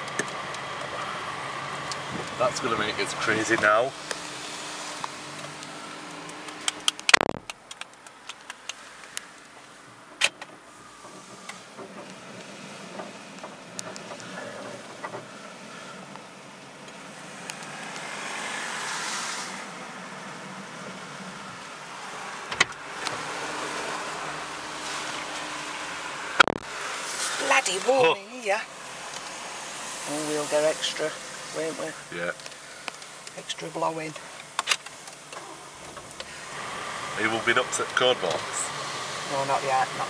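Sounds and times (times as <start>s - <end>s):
automatic car wash running: 0.0s - 6.7s, 10.6s - 40.0s
scattered clicks: 5.0s - 9.2s
hiss of spray: 18.4s - 19.6s, 28.9s - 32.0s.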